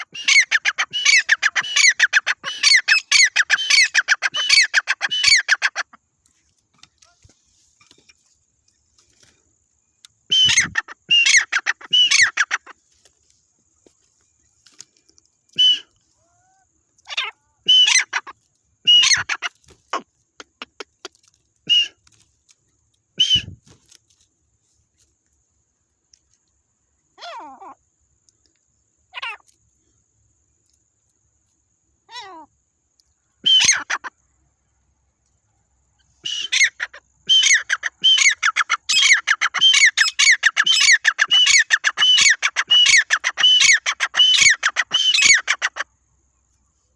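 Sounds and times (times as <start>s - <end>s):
partridge calling: 0.0s - 6.0s, 10.3s - 12.8s, 15.6s - 18.3s, 18.9s - 22.0s, 23.2s - 23.6s, 33.4s - 34.1s, 36.2s - 45.9s.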